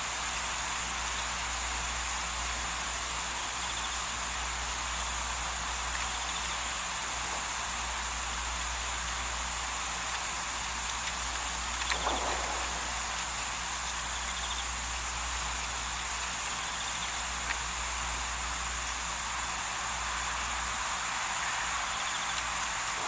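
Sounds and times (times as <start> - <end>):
constant low hum: 0.0 - 23.0
faint insect trills: 0.0 - 23.0
even hiss: 6.2 - 16.0.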